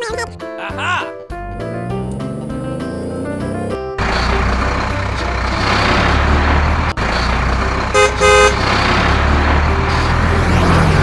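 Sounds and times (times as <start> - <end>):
cartoon truck engine: 1.3 - 11.0
horn honking: 7.2 - 8.8.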